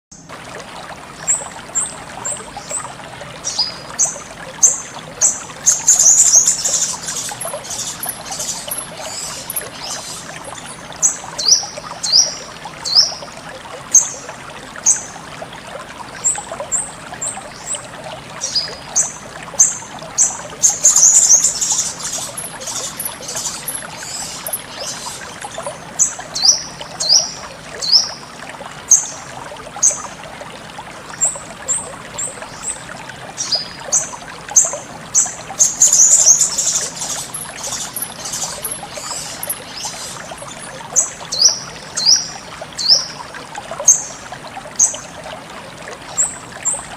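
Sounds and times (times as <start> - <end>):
water trickling: 0.1 - 46.9
bird twittering rapidly: 3.4 - 13.2, 18.4 - 28.2, 33.4 - 43.2
bird chirping: 3.5 - 13.2, 18.4 - 25.2, 33.4 - 43.1.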